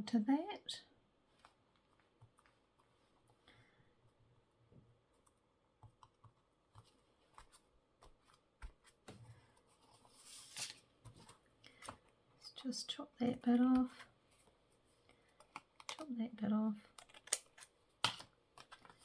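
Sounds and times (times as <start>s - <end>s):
paper rustling: 6.8s - 12.0s, 16.9s - 19.0s.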